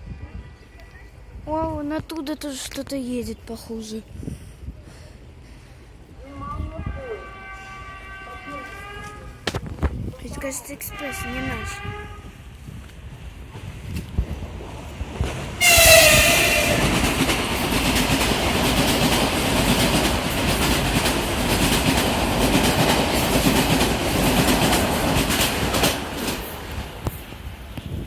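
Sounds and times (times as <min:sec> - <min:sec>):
train horn blast: 0:06.8 - 0:09.4, 0:10.8 - 0:12.4, 0:15.6 - 0:17.2
train rushing past: 0:13.2 - 0:28.0
wheels clacking over rail joints: 0:15.1 - 0:27.3.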